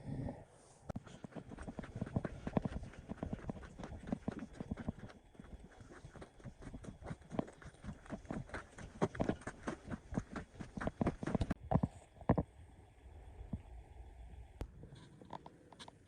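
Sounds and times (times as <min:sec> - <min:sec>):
footsteps on loose stones: 0:01.0 - 0:11.6.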